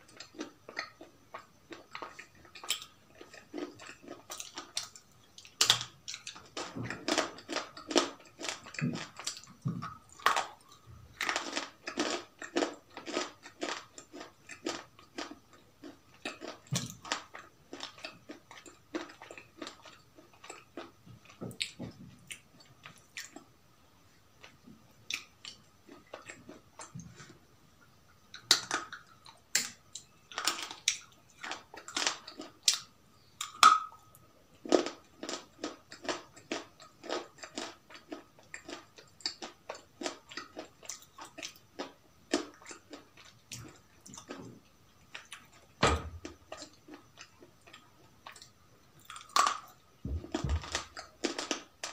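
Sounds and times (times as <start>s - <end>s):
crunchy chewing and biting: 0.0s - 23.5s, 34.6s - 51.9s.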